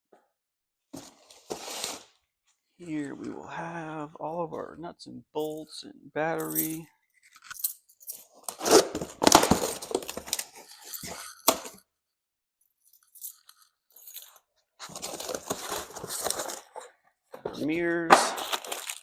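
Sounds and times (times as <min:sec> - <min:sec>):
plastic packaging crinkling: 0:14.8 - 0:16.8, 0:18.3 - 0:19.0.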